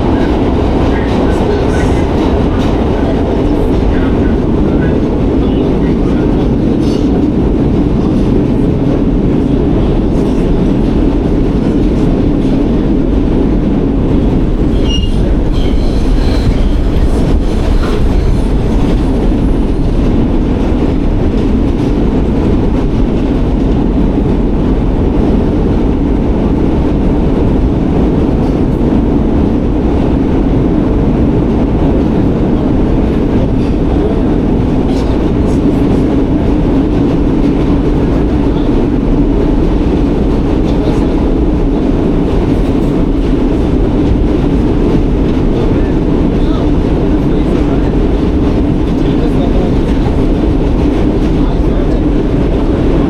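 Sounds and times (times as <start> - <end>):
subway train wheels rumbling: 0.0 - 53.0
faint wheel squeals: 14.7 - 16.7.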